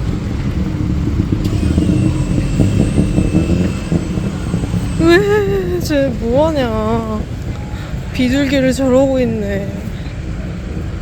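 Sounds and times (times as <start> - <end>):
cars passing: 0.0 - 11.0
motorbikes passing: 0.0 - 11.0.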